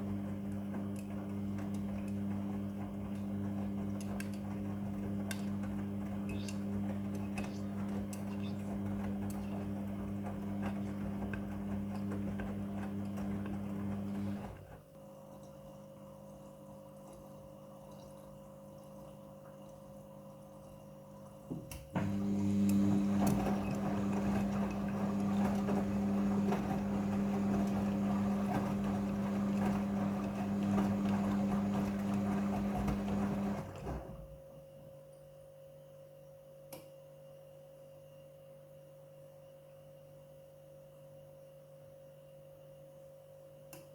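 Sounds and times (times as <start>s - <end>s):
washing machine hum with rushing water: 0.0s - 34.6s.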